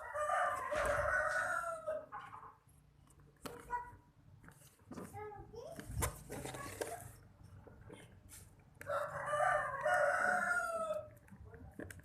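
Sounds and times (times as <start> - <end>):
rooster crowing: 0.0 - 2.1, 8.8 - 11.1.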